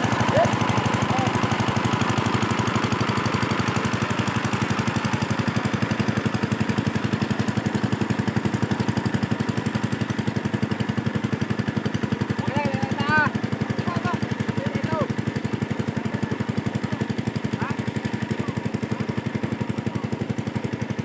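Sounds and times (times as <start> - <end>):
diesel engine chugging: 0.0 - 21.0.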